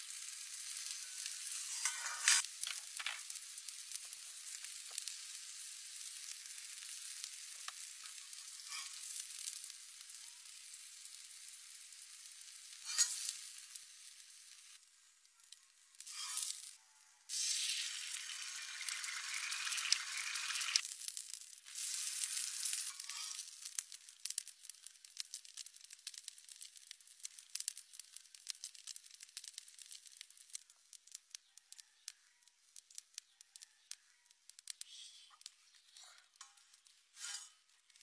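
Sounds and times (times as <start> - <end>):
sizzling hiss in a wok: 0.0 - 38.0
sharp crackling pops: 15.4 - 38.0.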